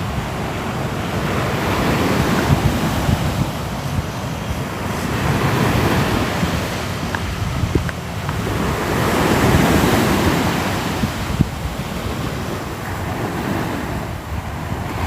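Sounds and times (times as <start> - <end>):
sea waves washing on shore: 0.0 - 15.0.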